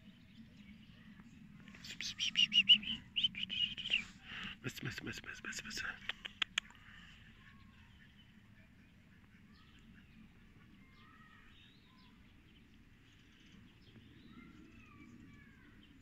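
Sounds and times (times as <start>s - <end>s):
birds chirping and whistling: 0.0s - 4.6s
low outdoor rumble: 0.0s - 16.0s.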